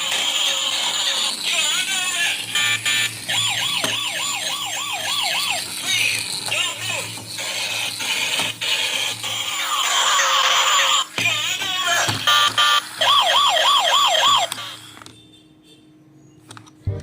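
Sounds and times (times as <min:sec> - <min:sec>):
electronic siren warbling: 0:02.3 - 0:11.1, 0:11.9 - 0:14.8.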